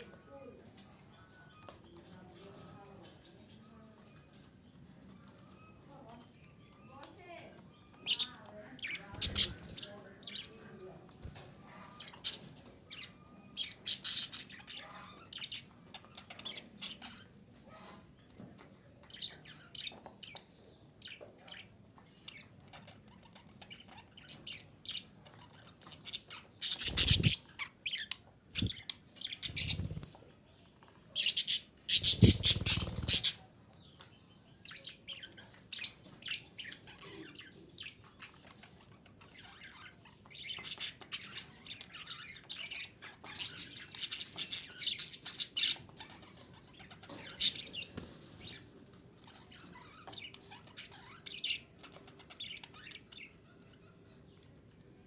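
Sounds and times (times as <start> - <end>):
budgerigar chirping and chattering: 6.5 - 10.5, 11.7 - 18.0, 19.0 - 30.2, 31.1 - 33.5, 34.6 - 48.6, 49.3 - 54.2.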